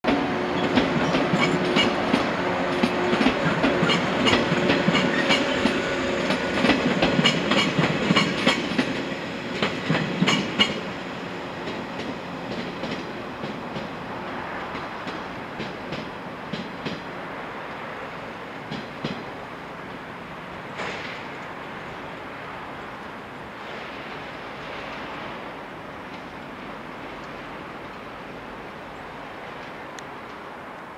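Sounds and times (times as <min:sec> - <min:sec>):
train rumble: 0:00.0 - 0:30.9
train wheels clickety-clack: 0:00.1 - 0:11.0, 0:11.6 - 0:14.0, 0:14.6 - 0:17.1, 0:18.6 - 0:19.4, 0:20.7 - 0:21.6.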